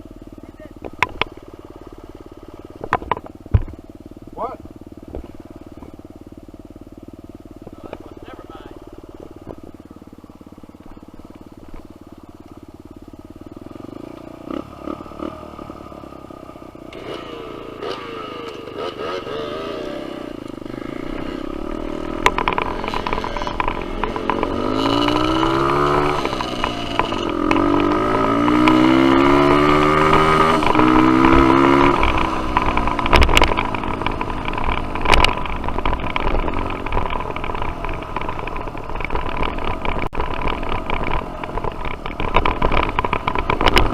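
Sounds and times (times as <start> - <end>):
dirt bike engine revving: 0.0 - 43.9
sharp knocks: 2.8 - 3.8.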